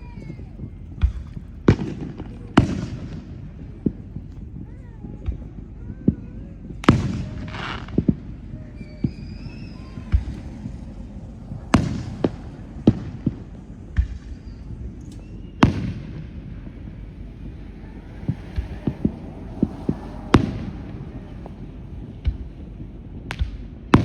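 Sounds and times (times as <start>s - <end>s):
crackling hiss: 0.0s - 24.0s
fireworks bangs: 0.0s - 24.0s
faint wavering whistle: 8.6s - 16.2s.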